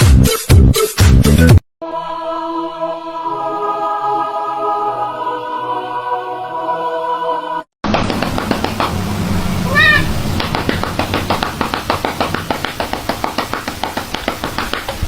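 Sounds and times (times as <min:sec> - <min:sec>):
cat meowing: 0:09.7 - 0:10.2.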